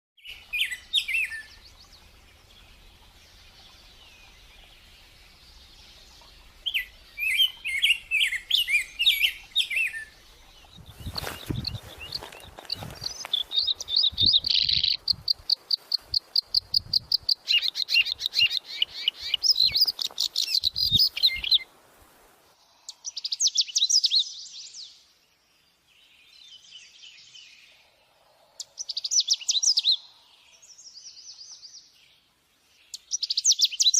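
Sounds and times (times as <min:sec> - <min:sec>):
bird chirping and trilling: 0:05.6 - 0:21.6, 0:22.9 - 0:24.9, 0:28.7 - 0:31.3, 0:32.9 - 0:33.9.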